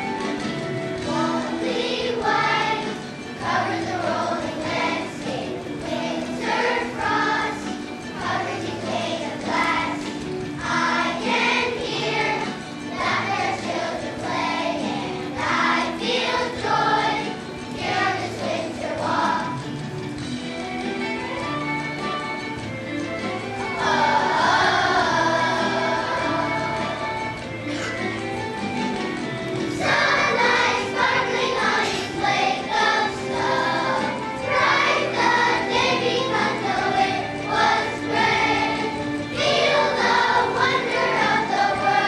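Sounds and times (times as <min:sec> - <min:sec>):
children's choir singing: 0:00.0 - 0:20.2, 0:21.2 - 0:42.0
instrumental accompaniment: 0:00.0 - 0:42.0.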